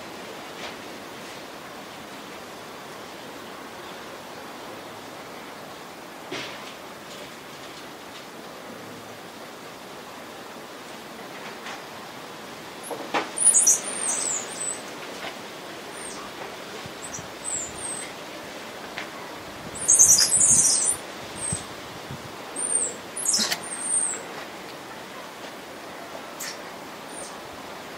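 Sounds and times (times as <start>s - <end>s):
small birds chirping: 13.4s - 14.8s, 17.0s - 18.1s, 19.8s - 21.7s, 22.6s - 24.3s.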